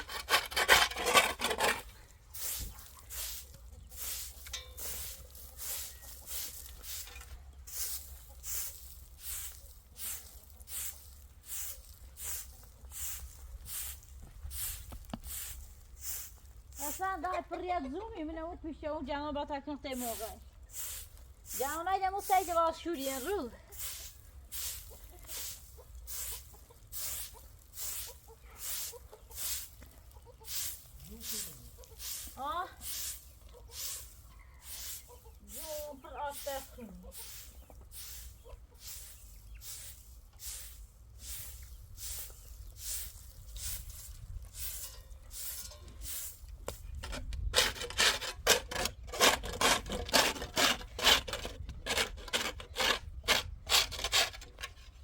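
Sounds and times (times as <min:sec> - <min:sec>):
chickens clucking: 0:01.7 - 0:08.7, 0:23.5 - 0:40.6.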